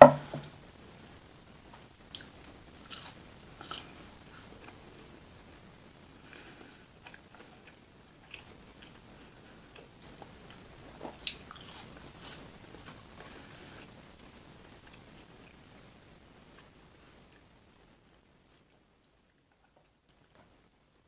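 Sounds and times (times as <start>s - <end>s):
person biting and chewing food: 2.1s - 4.8s, 11.0s - 12.5s.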